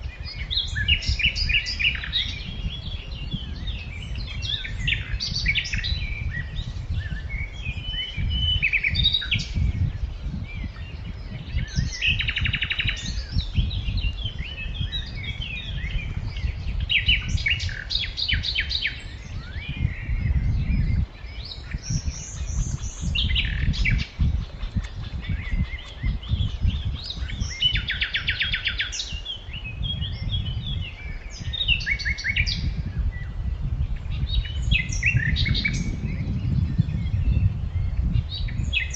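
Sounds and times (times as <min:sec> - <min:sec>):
steady low rumble: 0:00.0 - 0:28.4
small birds chirping: 0:00.0 - 0:38.9.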